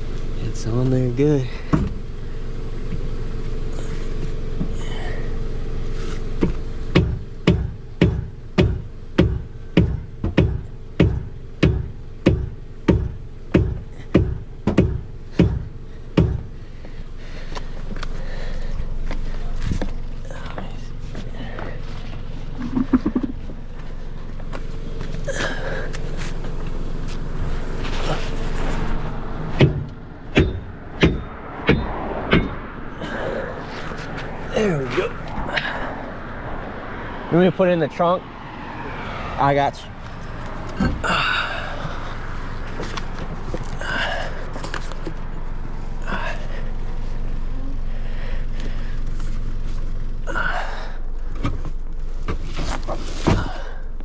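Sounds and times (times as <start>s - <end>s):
vehicle and traffic rumble: 0.0s - 54.0s
hard knocks on a wheel: 6.4s - 16.6s, 29.5s - 32.7s
breathy gasps: 40.8s - 42.3s.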